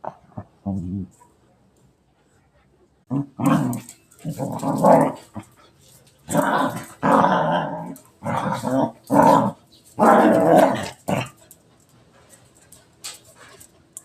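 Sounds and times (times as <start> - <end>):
dog growling: 3.1 - 5.6, 6.3 - 11.6.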